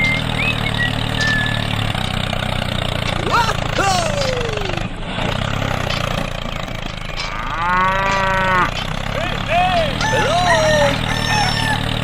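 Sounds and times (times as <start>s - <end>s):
low engine hum: 0.0s - 12.0s
cow mooing: 7.2s - 8.8s.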